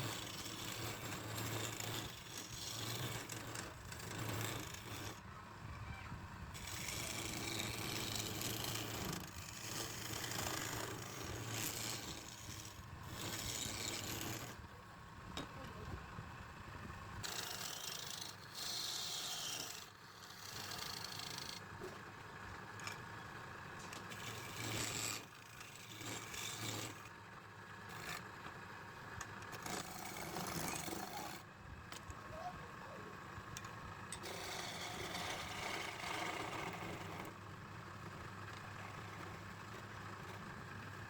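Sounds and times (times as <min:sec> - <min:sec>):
tool scraping spinning wood: 0:00.0 - 0:05.2, 0:06.6 - 0:14.7, 0:17.2 - 0:27.2, 0:27.8 - 0:32.5, 0:33.1 - 0:40.9
lathe motor hum: 0:17.2 - 0:21.6, 0:33.2 - 0:37.4.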